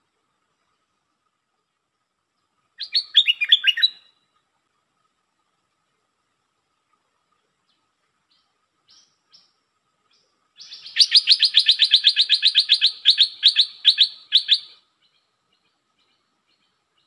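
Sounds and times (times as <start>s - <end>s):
bird calling rapid sharp notes: 10.6s - 14.8s.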